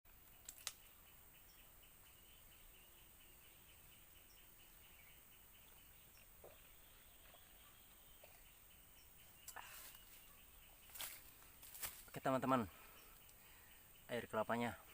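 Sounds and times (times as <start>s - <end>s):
insect chirping: 0.1s - 14.9s
sharp clicks: 0.3s - 0.9s.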